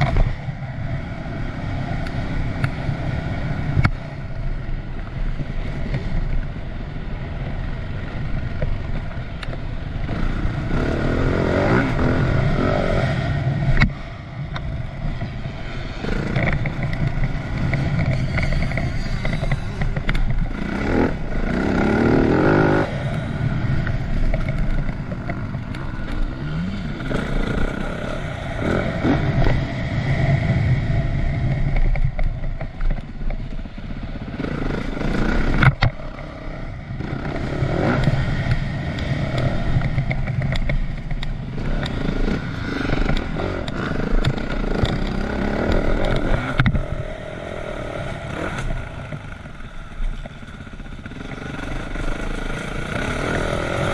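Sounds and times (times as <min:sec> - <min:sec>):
motocross bike engine revving: 0:10.0 - 0:13.8, 0:15.6 - 0:31.7, 0:33.7 - 0:53.9.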